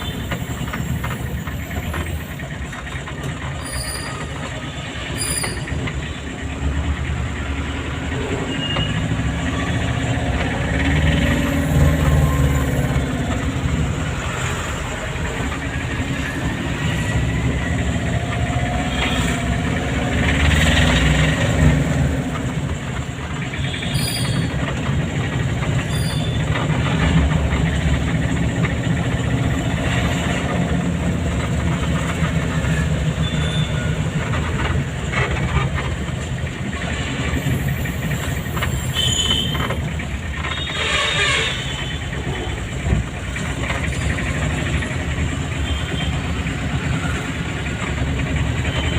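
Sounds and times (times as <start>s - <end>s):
car engine and road rumble: 0.0s - 48.9s.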